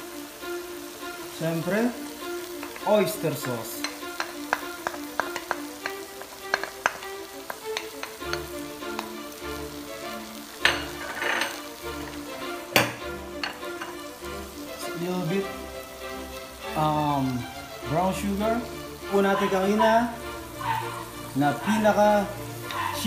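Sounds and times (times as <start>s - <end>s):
background music: 0.0s - 23.0s
seafood sizzling in a wok: 0.0s - 23.0s
spatula clicking on plate and pan: 2.6s - 9.2s, 10.6s - 12.2s, 12.8s - 14.0s.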